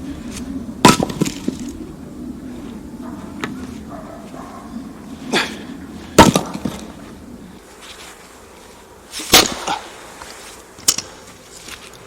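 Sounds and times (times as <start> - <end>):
sharp wood crack: 0.3 - 1.8, 6.2 - 7.0, 9.2 - 9.9
axe chopping firewood: 0.8 - 1.7, 6.2 - 6.8, 9.2 - 9.8.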